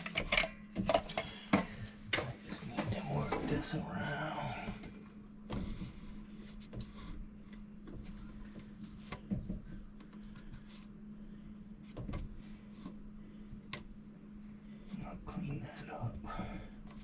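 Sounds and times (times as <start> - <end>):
steady low hum: 0.0 - 17.0
soft handling knocks and rubs: 4.7 - 17.0.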